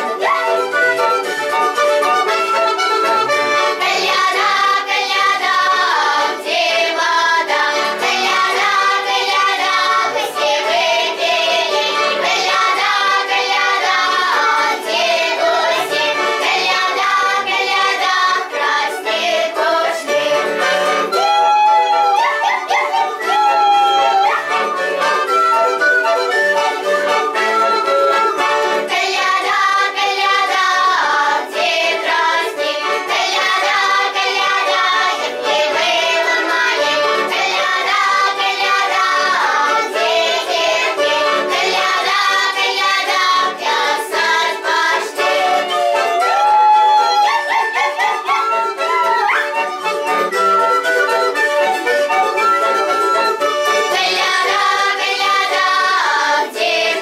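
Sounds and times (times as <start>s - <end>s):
children singing a carol: 0.0s - 57.0s
instrumental accompaniment with beat: 0.0s - 57.0s.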